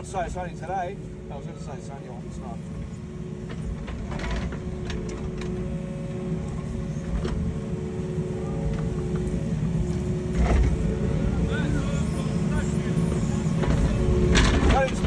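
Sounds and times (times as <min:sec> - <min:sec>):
engine rumbling with whine: 0:00.0 - 0:15.0.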